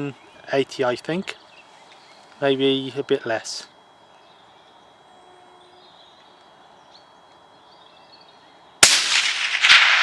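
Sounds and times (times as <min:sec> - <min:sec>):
faint open-air background: 0:00.0 - 0:10.0
rifle shot with echo: 0:08.8 - 0:10.0.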